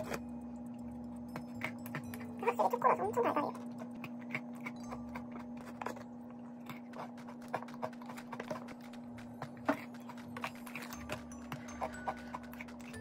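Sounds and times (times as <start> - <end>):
crunching frozen food: 3.5 - 13.0.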